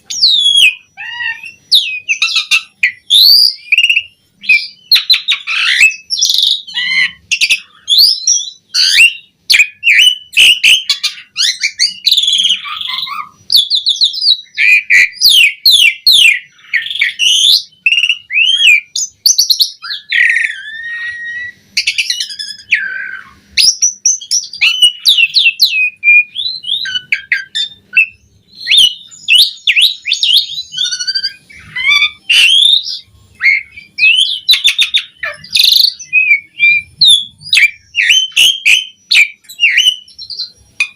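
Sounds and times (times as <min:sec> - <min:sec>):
starling singing: 0:00.0 - 0:40.9.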